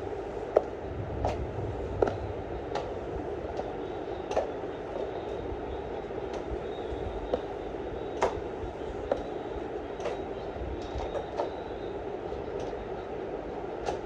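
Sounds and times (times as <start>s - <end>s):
steady rain patter: 0.7s - 4.8s.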